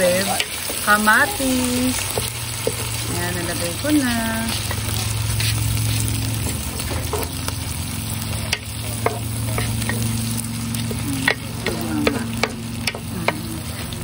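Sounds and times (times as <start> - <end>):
steady low hum: 0.0 - 14.0
vegetables sizzling in hot oil: 0.0 - 14.0
spatula tapping and scraping pan: 6.4 - 7.6, 8.4 - 14.0.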